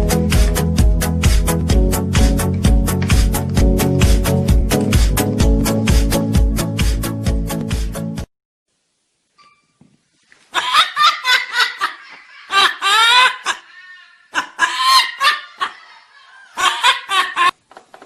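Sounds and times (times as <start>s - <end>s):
parrot laughing calls: 10.5s - 17.6s.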